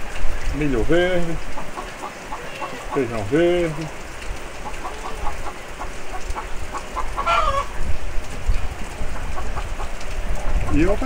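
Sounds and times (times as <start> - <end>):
steady rain on wet earth: 0.0 - 11.0
chicken clucking: 1.6 - 3.9, 4.6 - 7.7.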